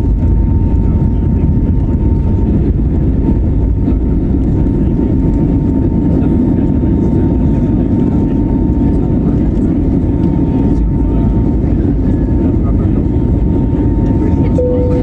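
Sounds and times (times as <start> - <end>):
jet engine and airflow rush: 0.0 - 15.0
thin steady whine: 14.4 - 15.0.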